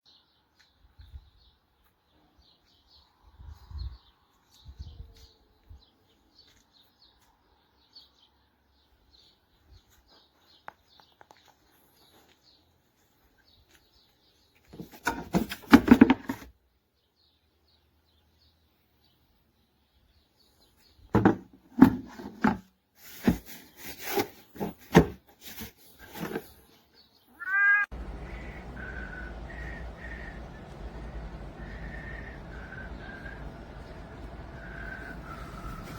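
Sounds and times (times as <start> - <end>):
small birds chirping: 0.1 - 15.0, 25.6 - 35.9
low thuds: 27.9 - 35.9.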